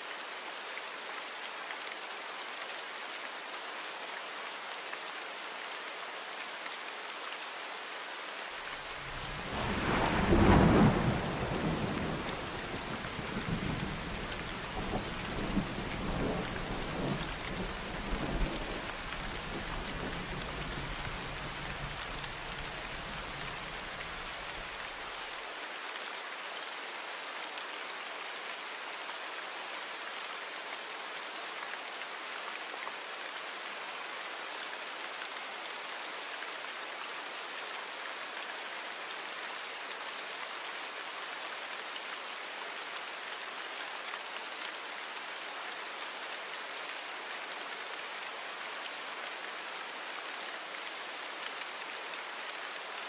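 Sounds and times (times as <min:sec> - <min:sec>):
steady rain falling: 0:00.0 - 0:53.0
low rumble of thunder: 0:09.1 - 0:18.8.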